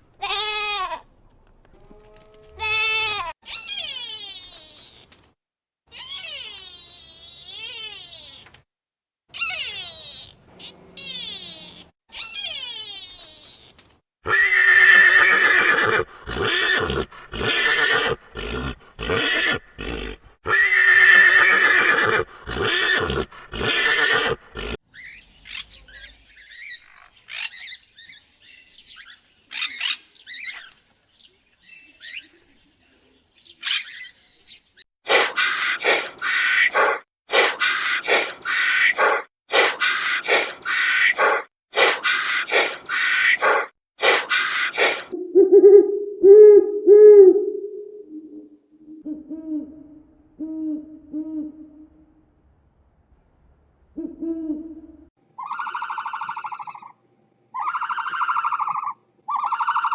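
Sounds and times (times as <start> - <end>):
horse neighing: 14.2 - 24.8, 35.1 - 45.2.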